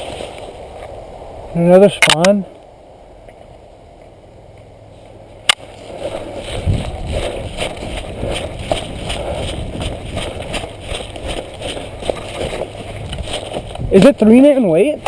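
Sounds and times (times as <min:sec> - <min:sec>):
footsteps crunching through dry brush: 0:00.0 - 0:01.2, 0:04.9 - 0:15.0
sharp click: 0:02.0 - 0:02.4
gear rustling: 0:05.5 - 0:15.0.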